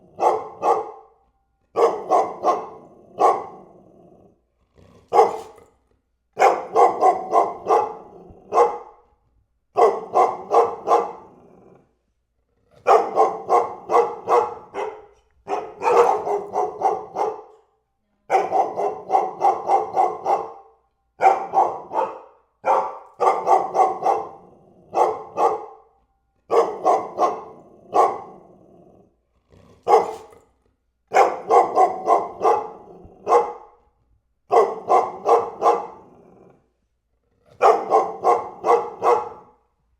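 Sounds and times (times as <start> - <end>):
dog barking: 0.0 - 3.8, 5.1 - 5.7, 6.4 - 9.1, 9.7 - 11.4, 12.8 - 28.6, 29.8 - 30.4, 31.1 - 33.9, 34.5 - 36.5, 37.6 - 39.7.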